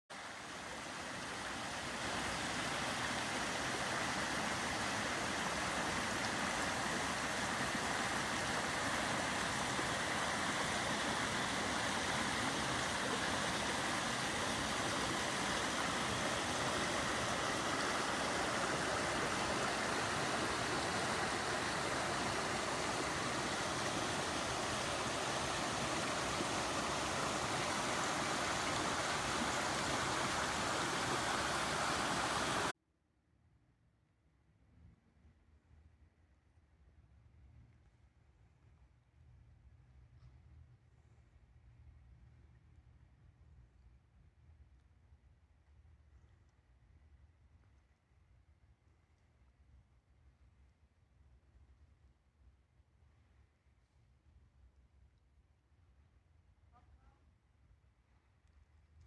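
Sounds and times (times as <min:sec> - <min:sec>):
creek rushing over falls: 0:00.1 - 0:32.7.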